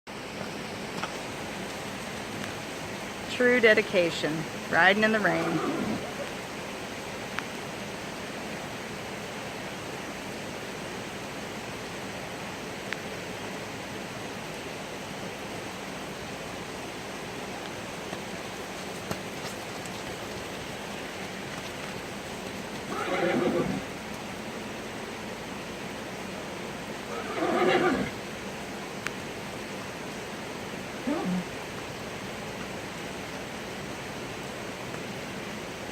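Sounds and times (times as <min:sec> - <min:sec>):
rain hissing: 0:00.1 - 0:35.9
horse whinnying: 0:05.3 - 0:06.3, 0:22.9 - 0:23.9, 0:27.1 - 0:28.2.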